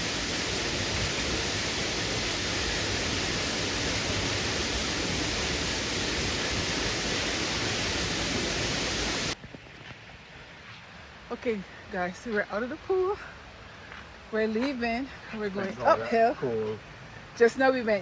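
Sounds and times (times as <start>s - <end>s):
waterfall pouring into pool: 0.0s - 9.4s.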